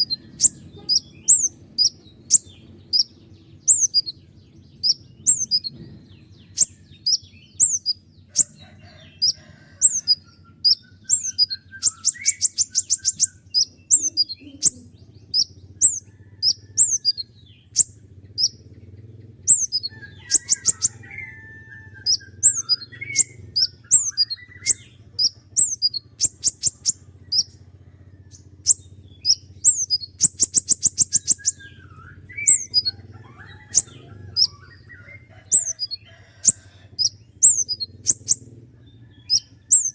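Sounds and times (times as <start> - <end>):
bird rattling trills: 0.0 - 4.2, 4.8 - 39.9
songbird singing high notes: 6.5 - 18.5.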